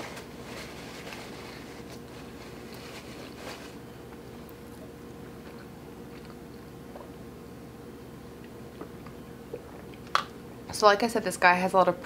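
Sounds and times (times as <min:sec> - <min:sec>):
faint chewing: 0:00.1 - 0:07.2.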